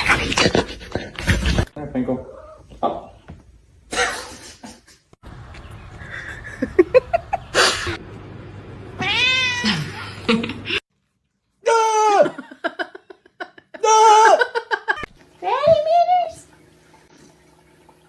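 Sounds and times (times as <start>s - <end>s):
cat meowing: 9.0s - 10.0s.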